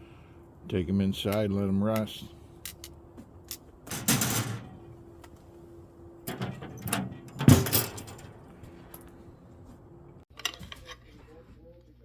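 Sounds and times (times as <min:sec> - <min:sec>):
door opening and shutting: 0:06.2 - 0:08.4.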